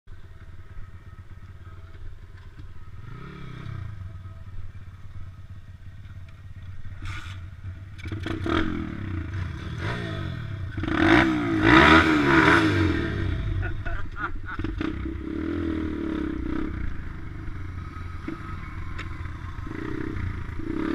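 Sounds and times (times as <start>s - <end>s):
motorbike engine revving: 6.6s - 20.9s.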